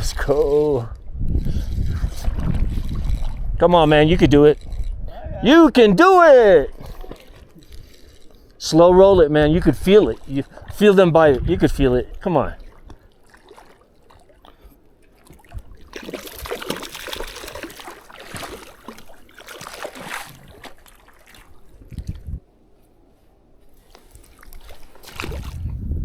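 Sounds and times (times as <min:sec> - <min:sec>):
fish splashing in water: 0:12.6 - 0:21.8, 0:24.1 - 0:25.7.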